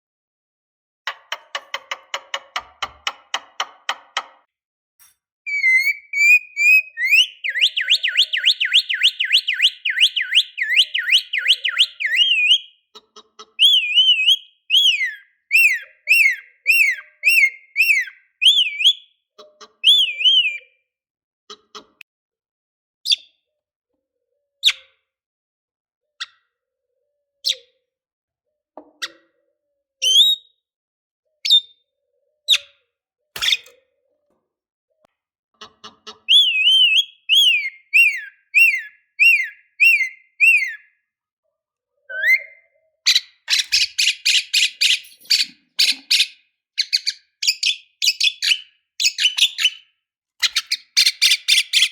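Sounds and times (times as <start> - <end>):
bird warbling trill: 5.5 - 12.6, 42.1 - 46.3
bird whistle: 5.5 - 12.8, 13.6 - 19.1, 19.8 - 20.8, 30.0 - 30.6, 36.3 - 41.0, 42.1 - 51.9
bird chirps: 5.5 - 20.9, 26.2 - 27.8, 28.5 - 30.7, 31.3 - 34.3, 35.0 - 41.1, 41.9 - 51.9
sharp bird chips: 33.4 - 33.8, 43.2 - 49.8.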